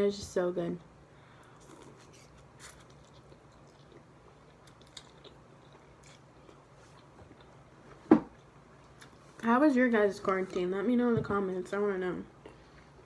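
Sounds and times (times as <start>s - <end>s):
person chewing food: 1.4s - 9.3s.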